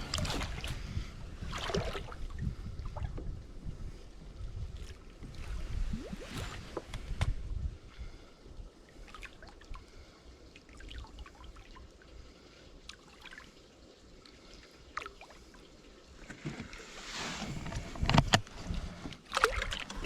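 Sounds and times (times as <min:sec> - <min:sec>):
water swishing: 0:00.0 - 0:20.0
water trickling and dripping: 0:08.8 - 0:16.3.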